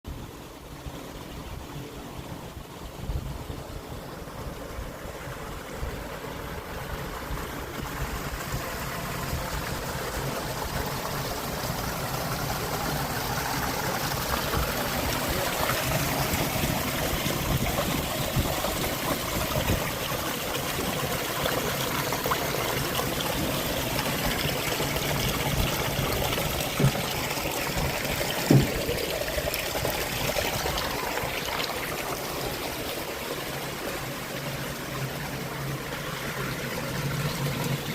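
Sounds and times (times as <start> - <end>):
water running and trickling: 0.3 - 37.9
short sharp knocks: 28.4 - 28.9.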